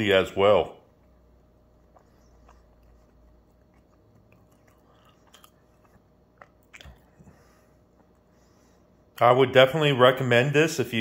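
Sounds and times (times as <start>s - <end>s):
faint crunchy chewing: 0.8s - 9.2s
soft mouth clicks: 1.8s - 7.4s.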